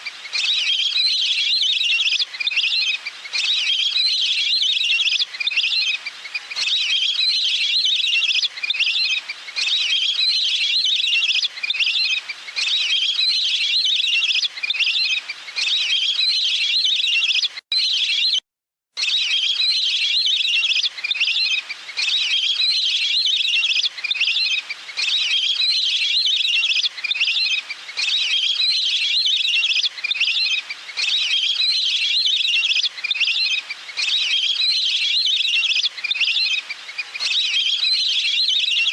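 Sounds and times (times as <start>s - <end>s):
recorded waterfowl calls: 19.0s - 38.9s.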